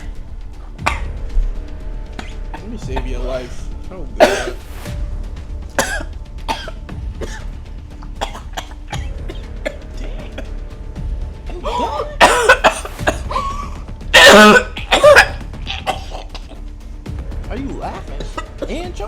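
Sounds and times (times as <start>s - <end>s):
person coughing and gagging: 0.0s - 1.4s, 2.0s - 4.9s, 5.7s - 16.9s, 18.0s - 19.0s
background music: 0.0s - 19.0s.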